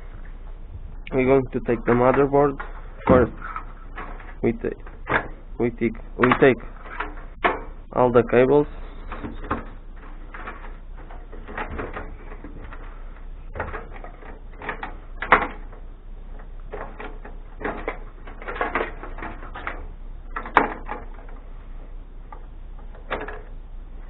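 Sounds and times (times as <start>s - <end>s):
sharp plastic clacks: 6.2s - 7.7s.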